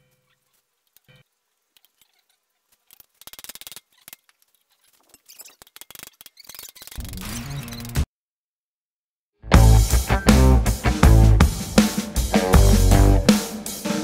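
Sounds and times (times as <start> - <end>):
music track: 9.4 - 14.0.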